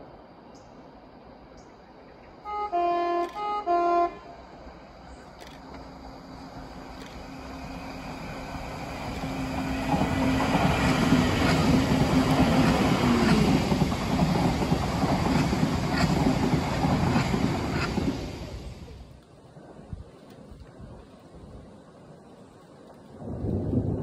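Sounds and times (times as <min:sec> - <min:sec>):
train hum: 0:00.0 - 0:24.0
train wheels rushing on rail: 0:04.5 - 0:21.0
wheels clicking over rail joints: 0:08.1 - 0:19.4.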